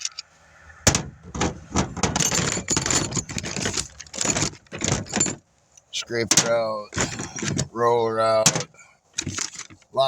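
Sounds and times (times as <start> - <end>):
tools clinking and rattling: 0.9 - 5.4, 6.2 - 7.8, 8.4 - 9.9.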